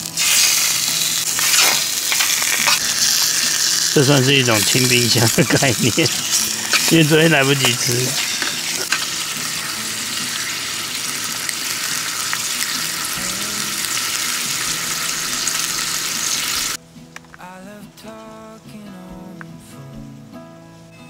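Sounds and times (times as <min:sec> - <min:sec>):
food sizzling in frying: 0:00.0 - 0:16.8
soft background music: 0:00.0 - 0:21.0.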